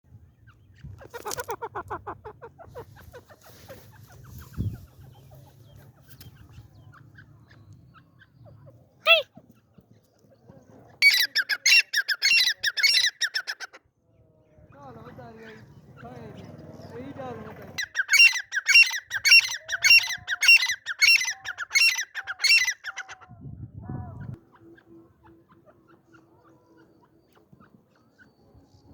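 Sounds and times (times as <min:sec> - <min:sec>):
francolin calling: 0:17.8 - 0:23.1.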